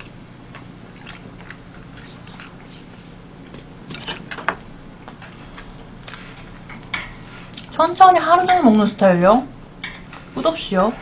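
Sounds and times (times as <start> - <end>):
soft chewing: 0.0 - 7.8.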